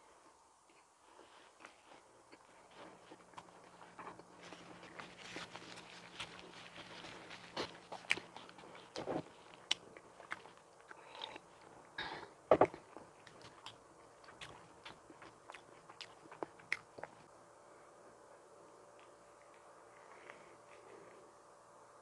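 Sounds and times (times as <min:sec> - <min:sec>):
person biting and chewing donut: 0:01.6 - 0:11.7, 0:12.5 - 0:17.3.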